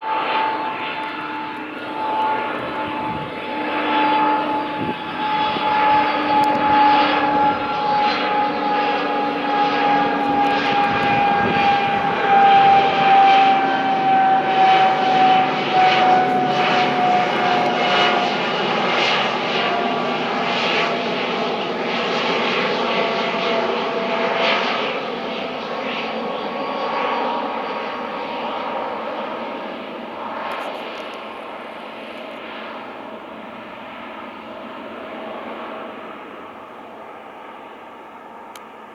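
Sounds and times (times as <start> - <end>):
jet engines whining overhead: 0.0 - 38.9.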